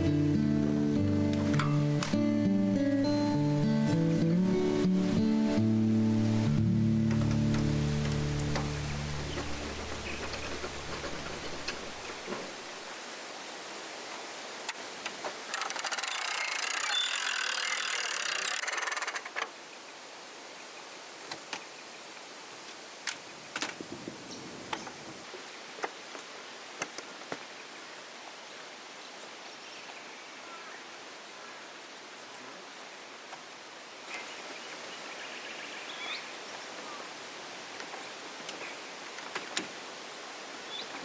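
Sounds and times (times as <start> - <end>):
loud rasping rattling sound: 15.5 - 19.5
sharp clicks: 15.5 - 19.5.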